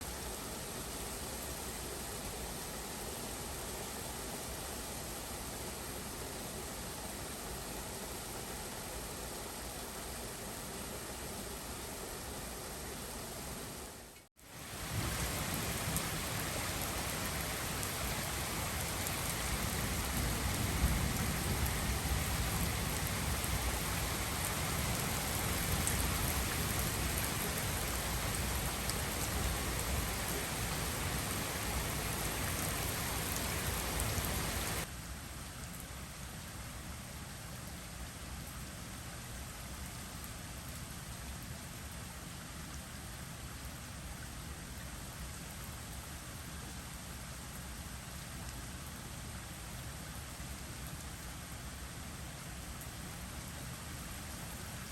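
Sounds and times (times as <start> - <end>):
heavy rain pouring: 6.4 - 34.9.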